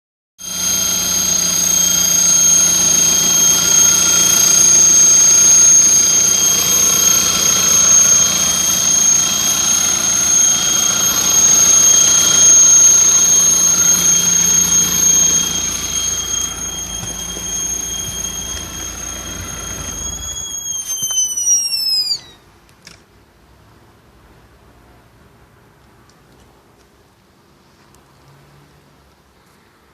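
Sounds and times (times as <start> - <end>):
high-pitched whistle from engine: 0.4 - 22.5
car engine running: 6.7 - 20.5.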